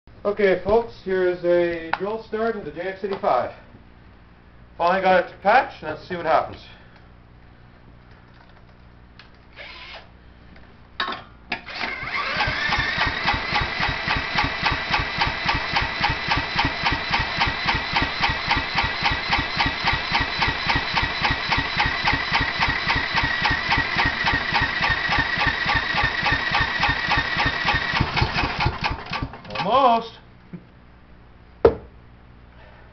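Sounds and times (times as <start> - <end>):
drill cranking engine: 9.6 - 10.1, 11.6 - 29.8.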